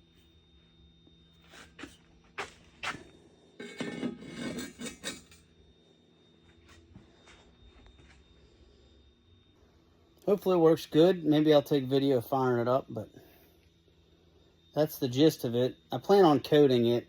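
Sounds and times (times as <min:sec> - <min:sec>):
clattering and scraping: 0:03.6 - 0:05.4.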